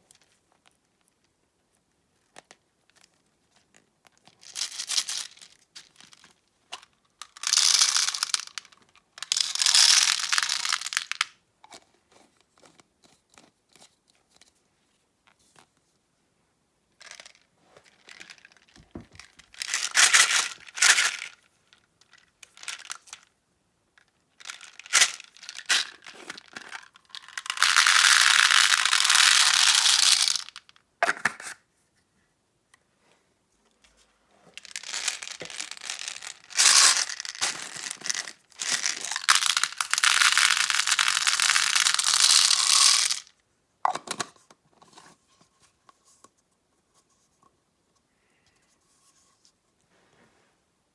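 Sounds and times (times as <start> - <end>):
packaging crinkling: 34.7 - 43.3.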